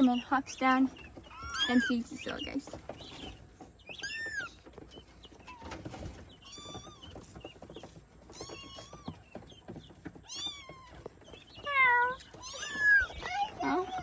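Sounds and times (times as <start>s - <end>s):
kittens mewing: 1.2s - 2.2s, 10.2s - 14.0s.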